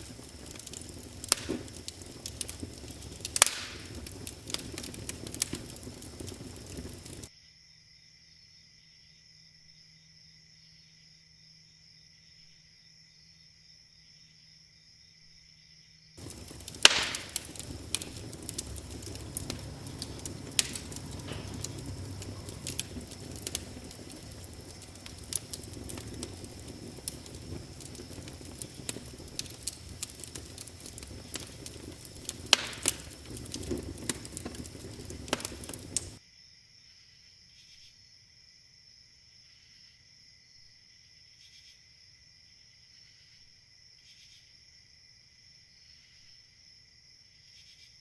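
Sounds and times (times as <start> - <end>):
wood fire crackling: 0.0 - 7.3, 16.2 - 36.2
crickets chirping: 0.0 - 48.0.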